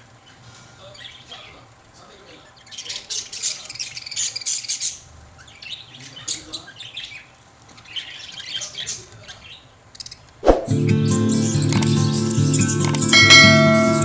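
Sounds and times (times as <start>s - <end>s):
lovebirds squawking and chirping: 0.1s - 1.6s, 2.2s - 10.3s.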